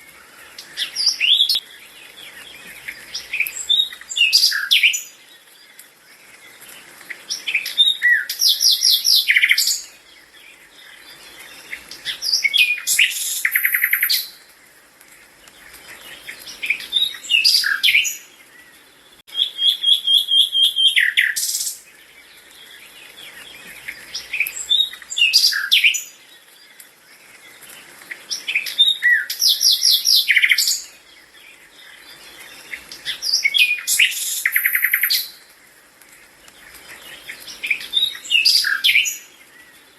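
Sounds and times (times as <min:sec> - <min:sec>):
bird singing trills: 0:07.3 - 0:14.4, 0:15.9 - 0:27.5, 0:28.2 - 0:35.4, 0:36.6 - 0:39.9.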